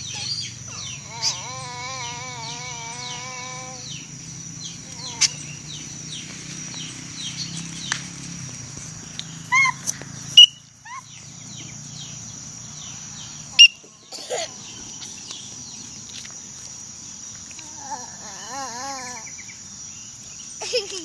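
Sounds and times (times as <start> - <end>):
high-pitched insect drone: 0.0 - 13.8
sharp bird calls: 0.0 - 15.9.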